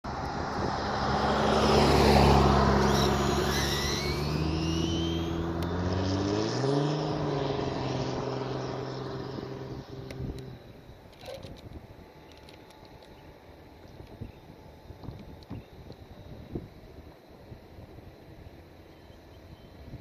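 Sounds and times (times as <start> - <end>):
rc truck motor whine: 1.9 - 6.8.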